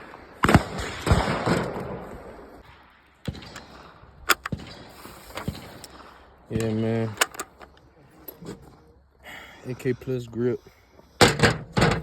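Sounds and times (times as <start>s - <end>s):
echoing gunshots: 0.2s - 6.2s.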